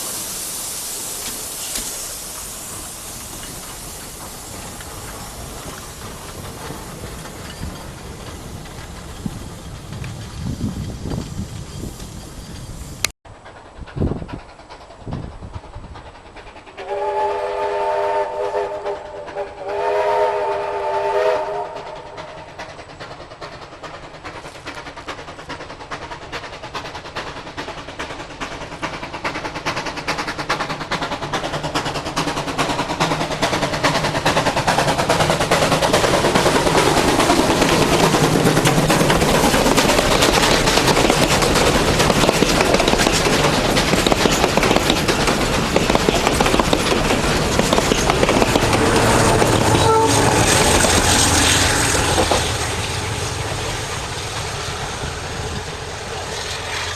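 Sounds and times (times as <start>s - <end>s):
train rumbling past: 0.0s - 56.9s
steam locomotive whistle: 16.8s - 22.5s, 48.7s - 53.4s.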